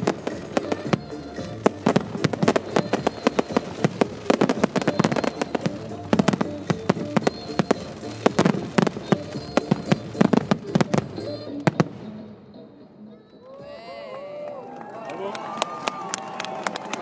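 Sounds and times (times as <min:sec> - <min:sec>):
fireworks shells bursting: 0:00.0 - 0:12.0
fireworks crackle: 0:00.0 - 0:12.2
show music: 0:00.0 - 0:17.0.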